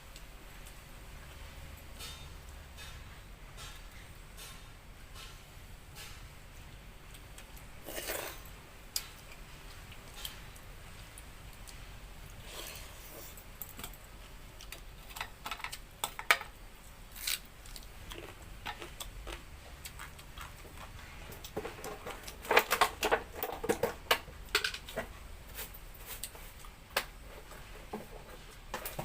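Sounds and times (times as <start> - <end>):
chewing and eating by hand: 7.1 - 16.2, 17.1 - 26.8.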